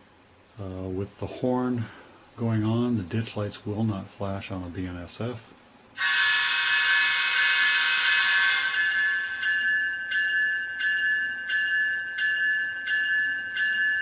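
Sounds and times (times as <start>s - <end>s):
diesel locomotive horn: 6.0s - 9.4s
locomotive bell ringing: 6.0s - 14.0s.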